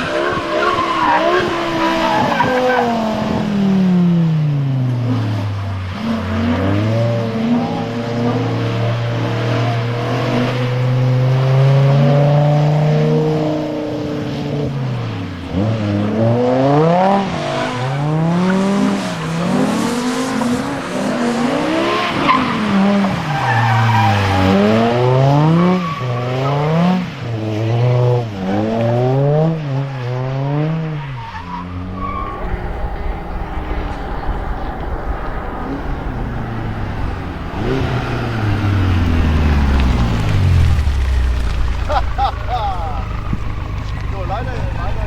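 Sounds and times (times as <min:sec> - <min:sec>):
car engine revving: 0:00.0 - 0:45.0
tyres squealing: 0:31.0 - 0:45.0.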